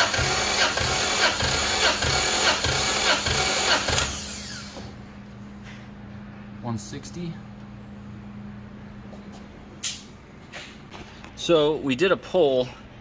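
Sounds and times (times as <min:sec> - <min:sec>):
engine cranking on starter: 0:00.0 - 0:04.8.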